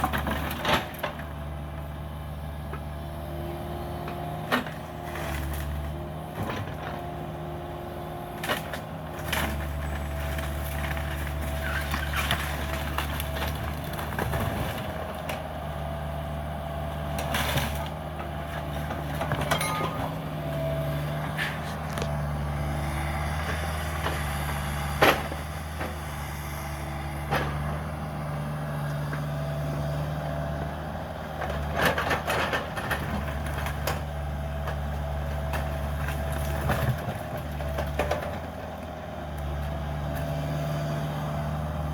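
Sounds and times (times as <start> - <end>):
excavator diesel engine running: 0.0 - 41.9
demolition debris knocking: 19.1 - 20.6.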